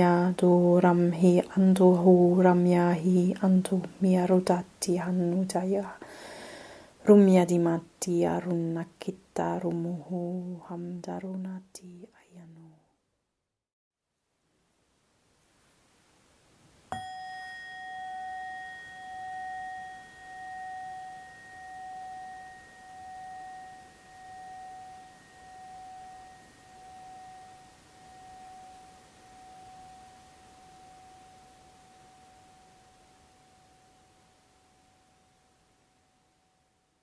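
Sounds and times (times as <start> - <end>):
struck metal bell-like ringing: 16.9 - 35.6.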